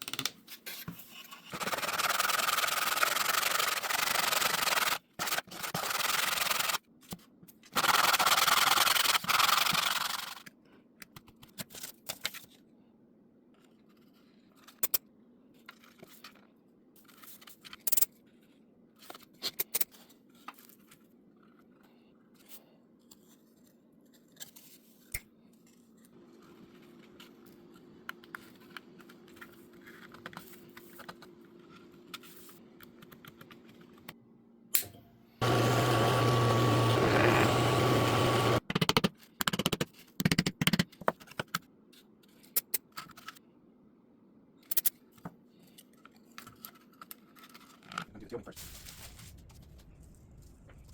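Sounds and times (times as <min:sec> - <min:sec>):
sandpaper rubbing: 0:01.4 - 0:06.8.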